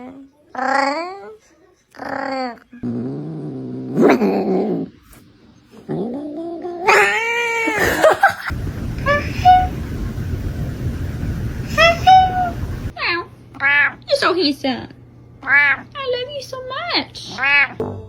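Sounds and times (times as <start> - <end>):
cat yowling: 6.8 - 7.8
steady background hiss: 6.9 - 12.9.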